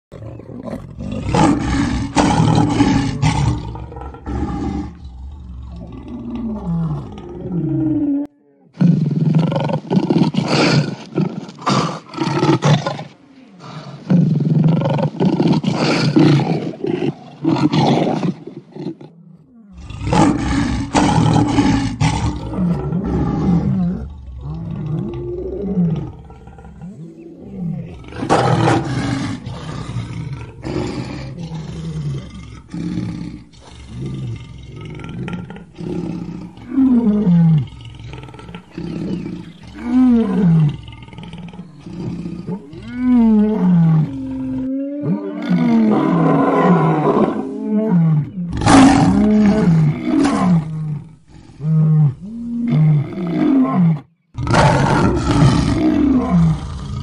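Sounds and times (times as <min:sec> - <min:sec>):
lion roaring and grunting: 0:00.1 - 0:57.0.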